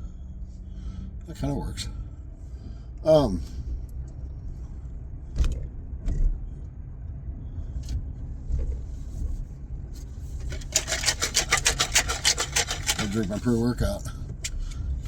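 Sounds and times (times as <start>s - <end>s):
vehicle rumble: 0.0s - 15.0s
loud fast rattling: 10.4s - 13.6s.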